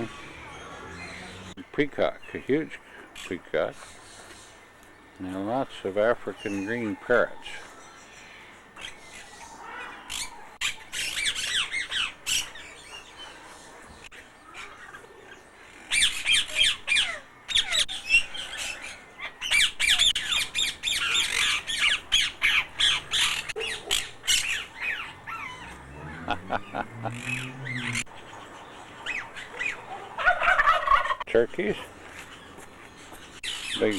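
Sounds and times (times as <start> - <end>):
parrots squawking: 0.0 - 1.6, 19.3 - 28.1.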